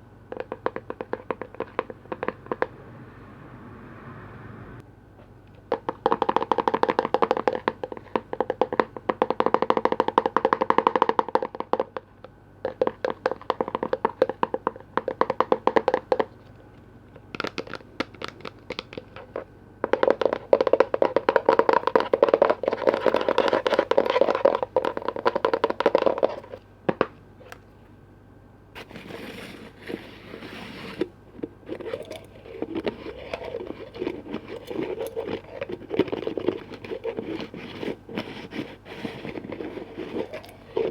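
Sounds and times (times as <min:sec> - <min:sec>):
fast tapping on container lids: 0:00.3 - 0:02.7, 0:05.7 - 0:16.3, 0:17.3 - 0:27.1.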